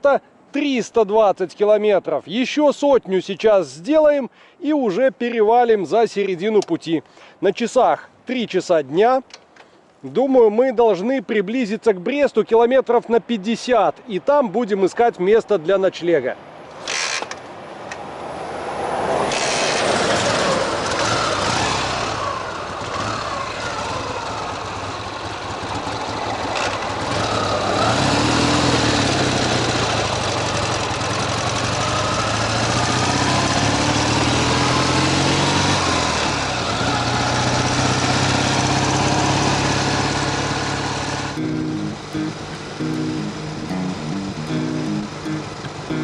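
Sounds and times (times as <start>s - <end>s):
motorcycle engine running: 21.0s - 46.0s.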